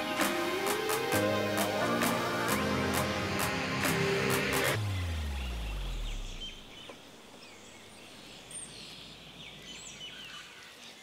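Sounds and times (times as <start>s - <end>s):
background music: 0.0s - 6.4s.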